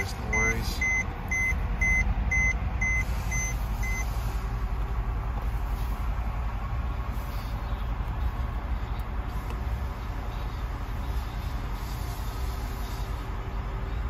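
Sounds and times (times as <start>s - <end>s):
dashboard warning chime beeping: 0.0s - 4.2s
car engine idling: 0.0s - 14.0s.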